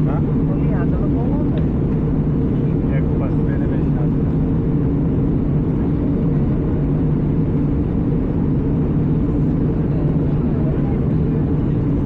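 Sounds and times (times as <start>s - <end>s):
airliner cabin drone: 0.0s - 12.0s.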